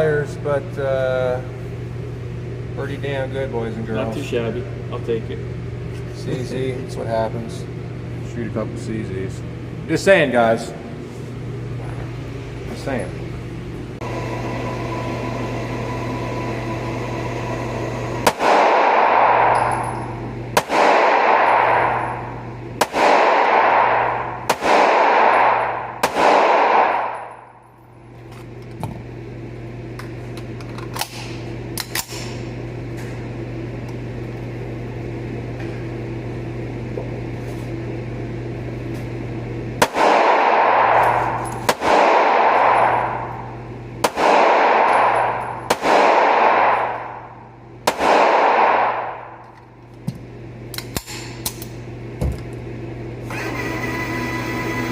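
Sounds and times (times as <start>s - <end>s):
steady low hum: 0.0s - 54.9s
gunshots with ringing tail: 18.2s - 19.9s, 20.6s - 27.5s, 39.8s - 43.4s, 44.0s - 49.4s.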